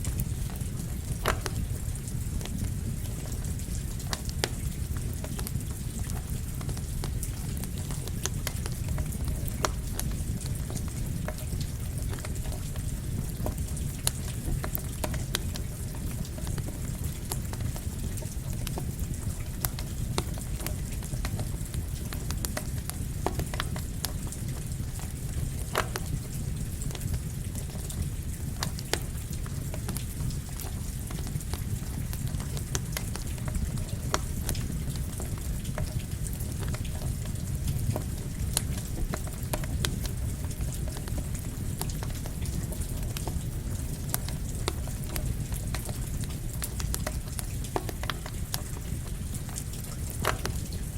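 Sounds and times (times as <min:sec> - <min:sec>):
campfire crackling and popping: 0:00.0 - 0:50.9
steady rain hiss: 0:00.0 - 0:50.9.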